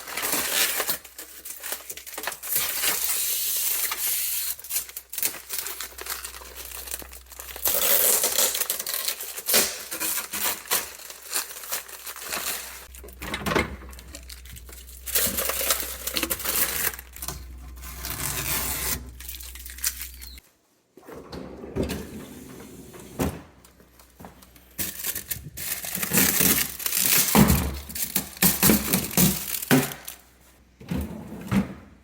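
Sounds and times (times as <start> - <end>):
plastic packaging crinkling and tearing: 0.0 - 20.4, 24.8 - 30.2.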